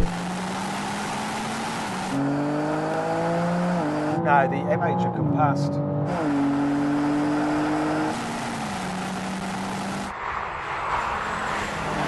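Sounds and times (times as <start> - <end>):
car engines at full throttle: 0.0 - 12.0.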